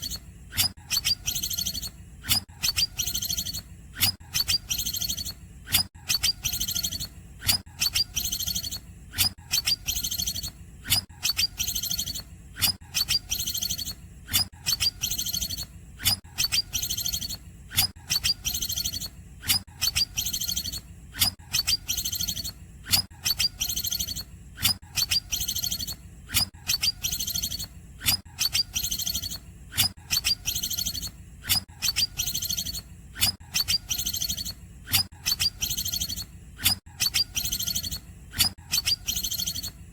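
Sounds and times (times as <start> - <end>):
bird singing sharp high calls: 0.0 - 1.9, 2.6 - 3.6, 4.3 - 5.4, 6.1 - 7.1, 7.8 - 8.8, 9.5 - 10.5, 11.2 - 12.2, 12.9 - 14.0, 14.7 - 15.7, 16.4 - 17.4, 18.1 - 19.1, 19.8 - 20.8, 21.5 - 22.6, 23.2 - 24.2, 25.0 - 26.0, 26.7 - 27.7, 28.4 - 29.4, 30.1 - 31.1, 31.8 - 32.8, 33.5 - 39.8.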